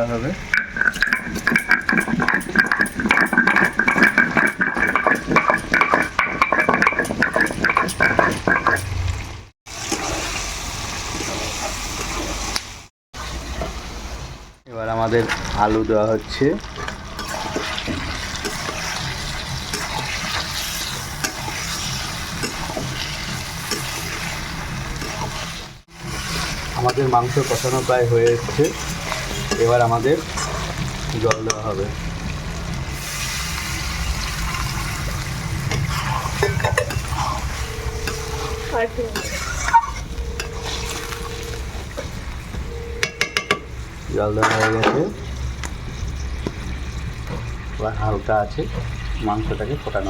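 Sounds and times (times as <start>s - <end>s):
food sizzling in a pan: 0.0s - 44.2s
spatula stirring and scraping: 0.5s - 9.0s, 16.8s - 31.6s, 34.0s - 43.6s
spices crunching and rattling: 0.6s - 8.9s.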